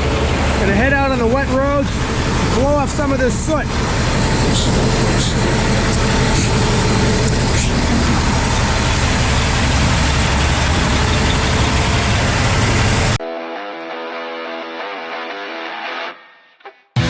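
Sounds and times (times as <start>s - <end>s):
diesel truck engine rumbling: 0.0s - 13.2s
electric guitar music: 3.7s - 17.0s.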